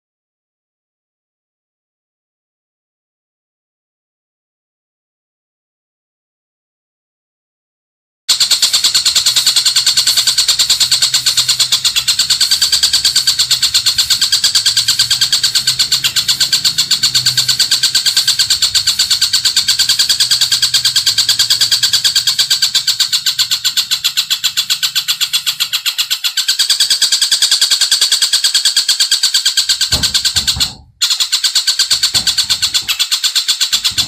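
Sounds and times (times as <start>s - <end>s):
songbird trilling: 8.8s - 33.0s.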